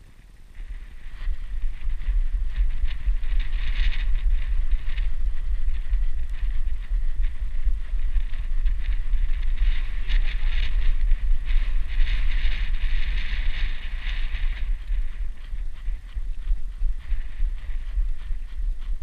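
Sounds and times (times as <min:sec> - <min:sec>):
camera buffeting and rubbing: 0:09.4 - 0:19.0.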